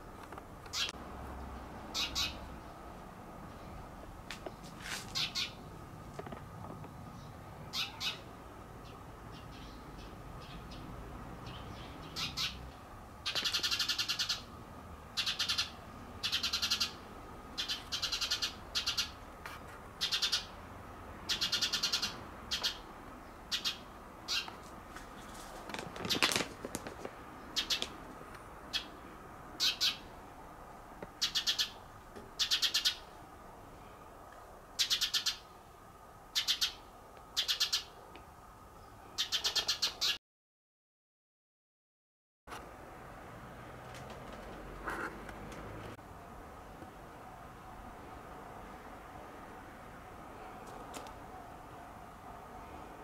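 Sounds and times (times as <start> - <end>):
bird calling: 0.7 - 1.0, 1.9 - 2.5, 5.1 - 5.7, 7.7 - 10.8, 11.5 - 12.6, 13.2 - 14.5, 15.2 - 17.0, 17.6 - 19.2, 20.0 - 20.6, 21.3 - 22.8, 23.5 - 24.6, 27.5 - 28.0, 29.6 - 30.1, 31.2 - 31.8, 32.4 - 33.1, 34.8 - 35.6, 36.3 - 38.0.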